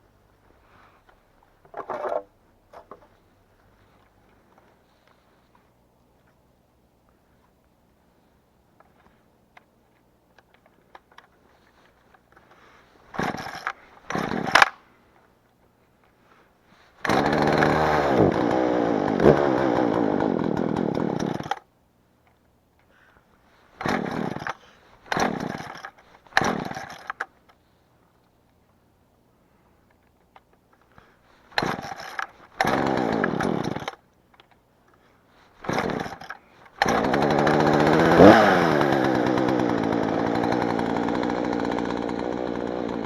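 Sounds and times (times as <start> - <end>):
chainsaw revving: 13.1 - 14.7, 17.0 - 21.7, 23.8 - 27.2, 31.5 - 34.0, 35.6 - 43.0.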